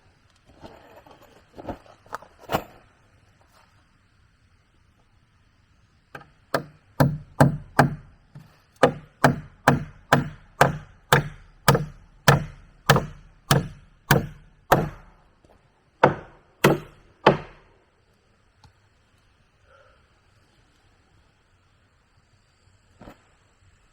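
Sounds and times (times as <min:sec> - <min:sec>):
hand tool striking wood: 0:06.2 - 0:15.2, 0:16.0 - 0:17.7.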